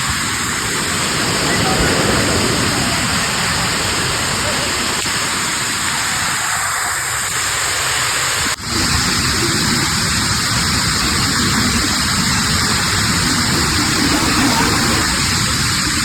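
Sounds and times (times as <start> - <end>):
loud rushing noise: 8.6 - 16.0.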